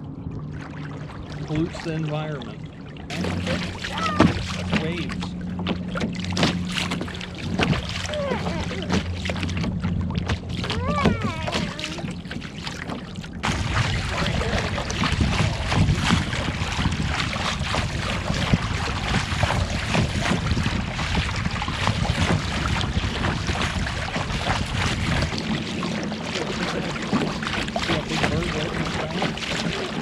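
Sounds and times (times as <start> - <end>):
water lapping against a kayak: 0.0 - 30.0
wind noise on microphone: 6.3 - 12.6, 13.4 - 30.0.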